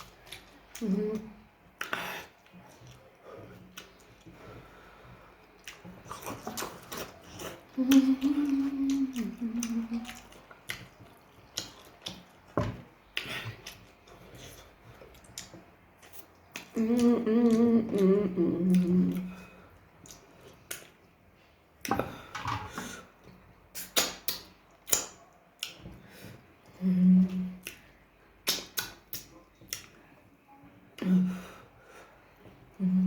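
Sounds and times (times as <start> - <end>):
person humming mmm: 7.4 - 10.3, 16.7 - 19.5, 26.8 - 27.7, 32.8 - 33.0
chewing clicks and smacks: 9.2 - 16.8, 20.0 - 21.1, 23.8 - 25.9, 27.6 - 30.0.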